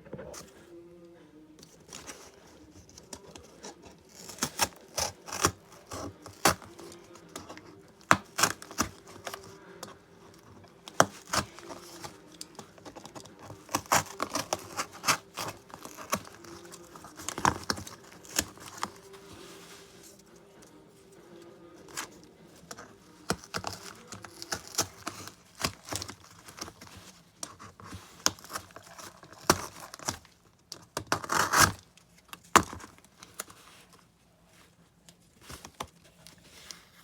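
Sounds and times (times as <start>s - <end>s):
cardboard clicking and scratching: 0.0s - 0.6s, 1.6s - 37.0s.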